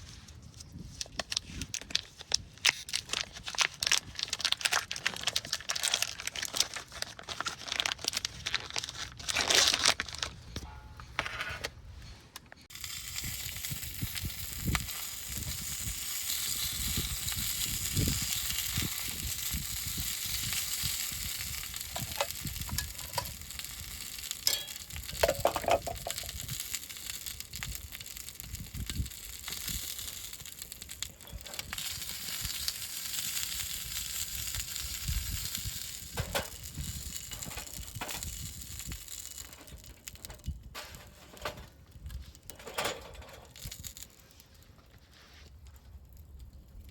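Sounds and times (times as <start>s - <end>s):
food sizzling in a pan: 12.7s - 39.6s.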